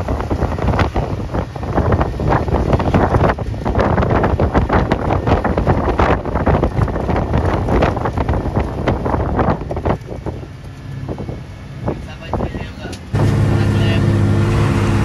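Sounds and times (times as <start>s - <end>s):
bus engine and road rumble: 0.0s - 15.0s
wind buffeting microphone: 0.0s - 15.0s.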